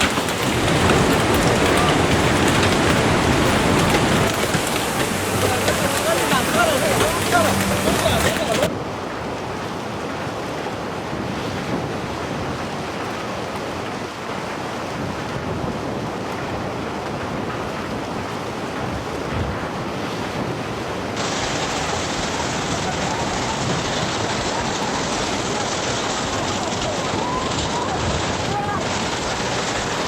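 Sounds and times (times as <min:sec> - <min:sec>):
wind buffeting microphone: 0:00.0 - 0:08.7
floodwater rushing: 0:00.0 - 0:30.0.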